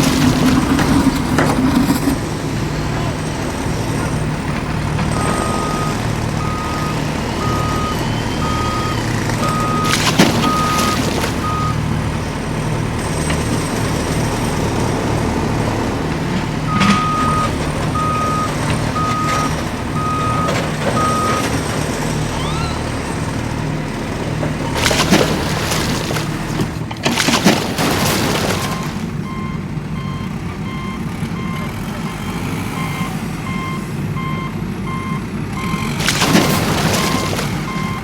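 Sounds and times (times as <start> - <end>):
truck engine running: 0.0 - 38.0
reversing alarm beeping: 5.0 - 12.0, 16.7 - 23.5, 28.6 - 36.0, 36.8 - 38.0.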